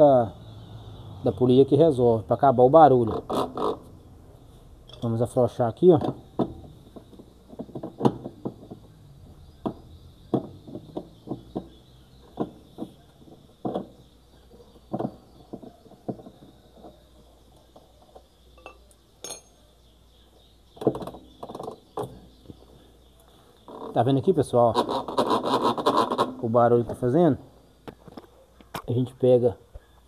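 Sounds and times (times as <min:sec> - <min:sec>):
wrench clinking on metal: 0:18.6 - 0:19.6.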